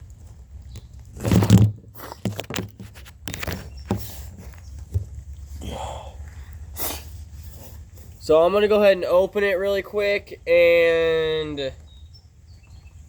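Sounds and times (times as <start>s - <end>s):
handling rustles: 1.0s - 5.5s.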